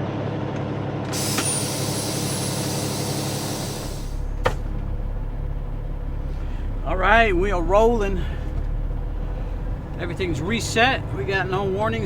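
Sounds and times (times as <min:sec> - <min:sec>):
air brakes hissing: 0:01.1 - 0:06.8
truck diesel engine idling: 0:01.2 - 0:12.0.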